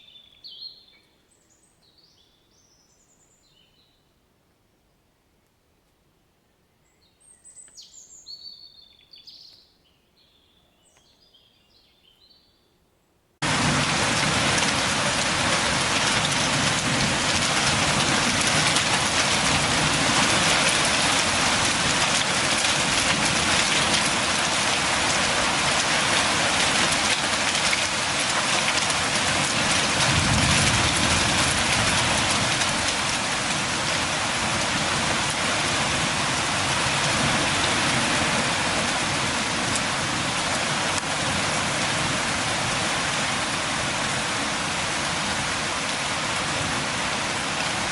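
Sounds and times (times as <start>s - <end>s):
rain pattering: 13.4s - 47.9s.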